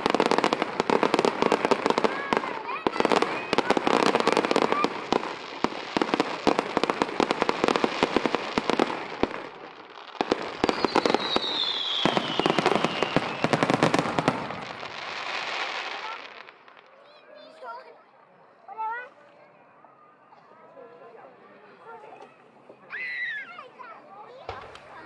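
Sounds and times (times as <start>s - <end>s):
fireworks bangs and crackles: 0.0s - 17.0s, 24.3s - 25.0s
falling firework whistle: 10.2s - 14.6s.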